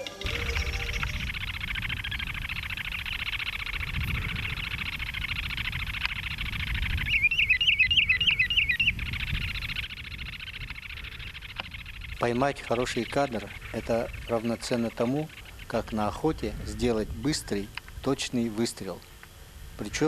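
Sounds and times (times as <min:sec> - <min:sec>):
shorebirds trilling: 0:00.0 - 0:19.6
rapid warbling bird calls: 0:00.0 - 0:20.0
low rumble: 0:00.2 - 0:07.0.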